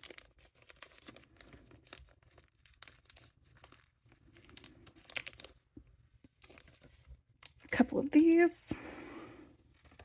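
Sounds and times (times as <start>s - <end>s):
packaging rustling and crinkling: 0.0s - 7.3s.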